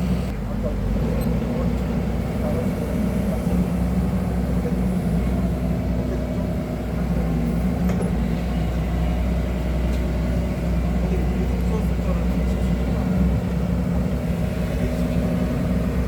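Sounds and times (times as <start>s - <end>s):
excavator engine running: 0.0s - 16.0s.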